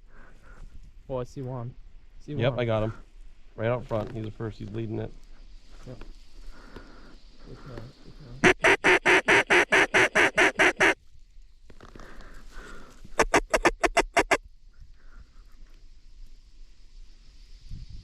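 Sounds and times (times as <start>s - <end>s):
duck call quacks: 8.4s - 11.0s, 13.2s - 14.4s.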